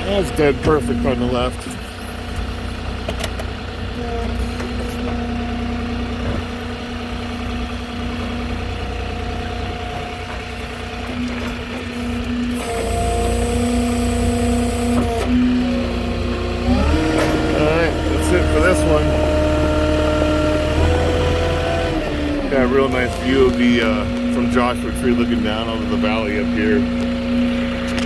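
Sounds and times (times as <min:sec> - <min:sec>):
forklift engine idling: 0:00.0 - 0:28.0.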